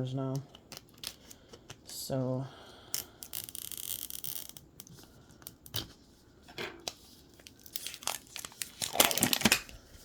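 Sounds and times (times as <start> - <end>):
plastic wrappers crinkling: 7.4 - 9.8.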